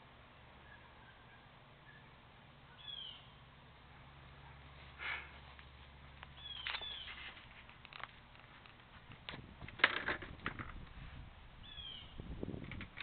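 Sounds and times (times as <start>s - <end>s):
bird whistled call: 2.8s - 3.3s, 11.6s - 12.2s
rustling: 4.8s - 11.3s.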